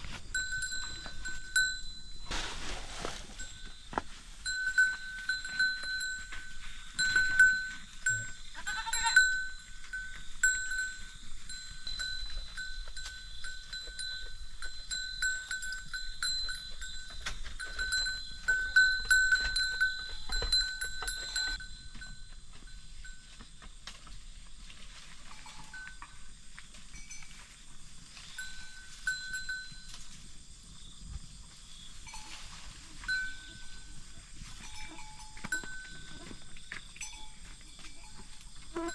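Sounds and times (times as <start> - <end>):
small metal bell clinking: 0.3 - 2.3, 3.4 - 23.3, 26.9 - 27.4, 28.3 - 30.0, 34.6 - 36.3, 37.0 - 38.9
goat bleating: 8.5 - 9.4.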